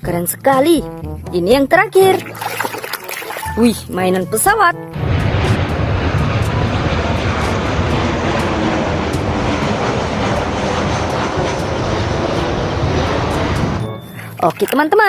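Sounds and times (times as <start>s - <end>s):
airplane engine rumble: 3.6s - 14.8s.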